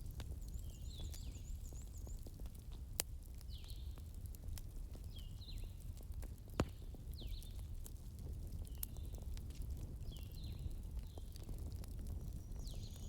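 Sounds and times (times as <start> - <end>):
wood fire crackling: 0.0 - 13.0
fire pop: 6.1 - 12.8.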